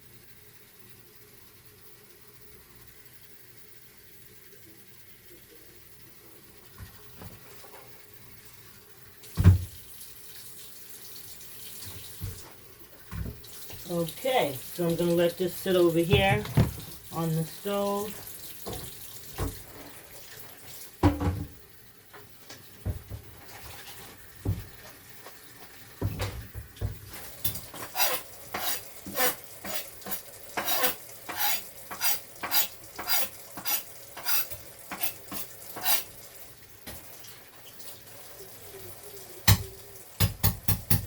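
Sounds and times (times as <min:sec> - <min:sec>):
dish knocks: 0:16.1 - 0:17.0, 0:21.0 - 0:21.6.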